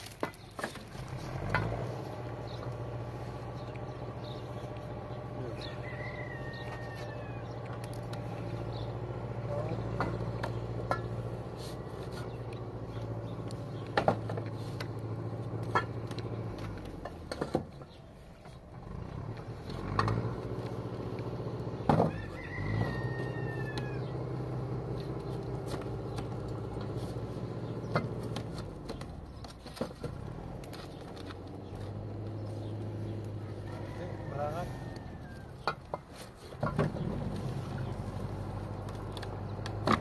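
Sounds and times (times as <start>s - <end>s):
drawn-out bird call: 0.5s - 17.0s, 17.7s - 29.6s.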